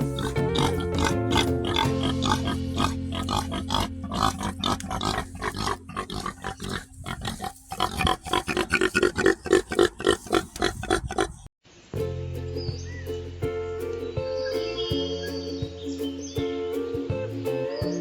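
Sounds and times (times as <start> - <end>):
pigs grunting: 0.0 - 11.5.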